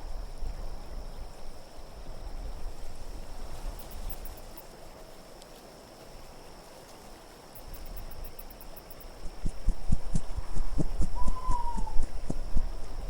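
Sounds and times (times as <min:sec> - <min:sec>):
rapid high-pitched chirping ticks: 0:07.6 - 0:13.0
wind rumbling low: 0:09.2 - 0:13.0.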